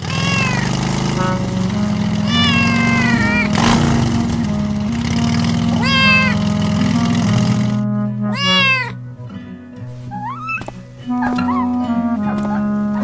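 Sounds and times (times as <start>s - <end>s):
cartoon cat meowing: 0.0s - 0.7s, 2.3s - 3.5s, 5.8s - 6.4s, 8.3s - 9.0s, 10.1s - 10.6s
background music: 0.8s - 13.0s.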